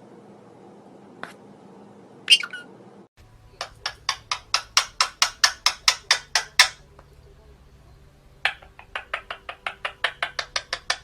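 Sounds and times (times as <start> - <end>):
parrot short sharp calls: 2.3 - 2.7
parrot squawking: 2.3 - 2.7, 3.6 - 6.8, 8.4 - 11.0.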